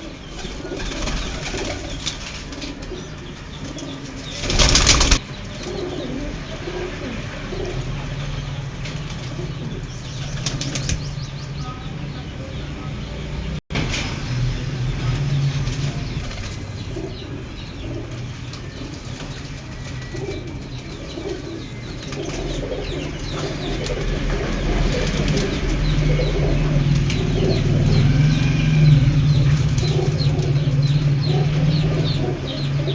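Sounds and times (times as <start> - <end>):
pigeons cooing: 0.0 - 11.5, 15.6 - 32.9
small birds chirping: 0.0 - 13.6, 14.8 - 32.9
wings flapping: 0.3 - 5.9, 8.8 - 11.2, 18.1 - 32.4.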